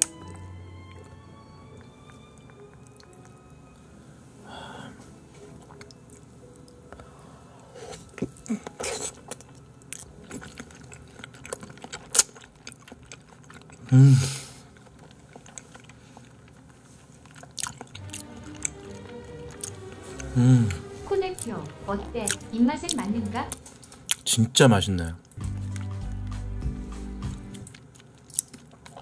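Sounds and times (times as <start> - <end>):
man chewing with wet mouth clicks: 0.0 - 3.5, 5.6 - 7.0, 8.1 - 14.0, 14.6 - 20.8, 22.3 - 24.2, 26.9 - 29.0
man humming: 13.9 - 14.4, 20.1 - 20.9.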